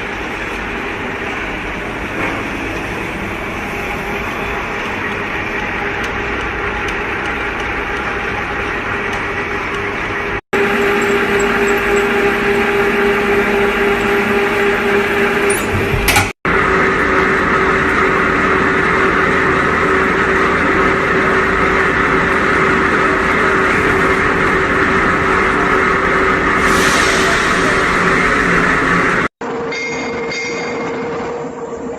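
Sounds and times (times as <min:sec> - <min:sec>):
drilling machine whining: 0:10.6 - 0:15.5.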